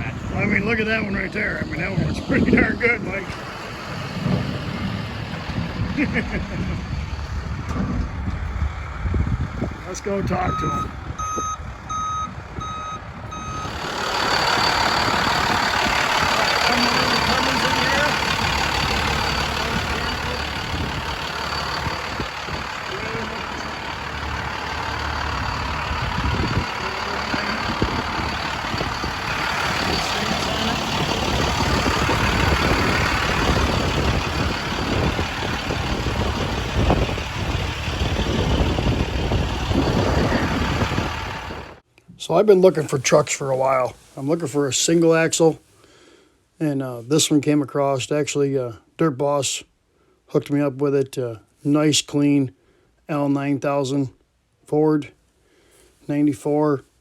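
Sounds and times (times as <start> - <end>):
low engine rumble: 0.0 - 44.7
truck reversing alarm beeping: 0.6 - 9.0, 10.1 - 41.8.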